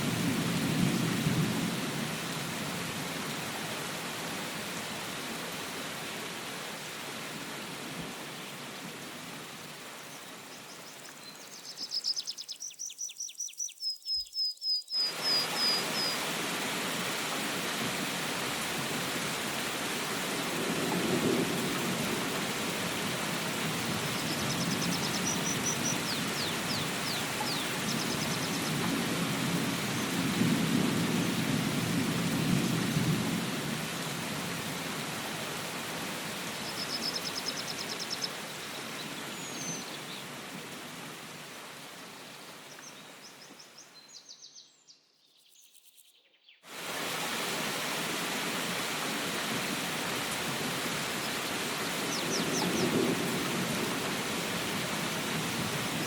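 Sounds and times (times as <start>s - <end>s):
steady rain: 0.0s - 12.2s, 15.0s - 44.2s, 46.7s - 56.0s
bird chirps: 10.2s - 16.2s, 24.2s - 28.7s.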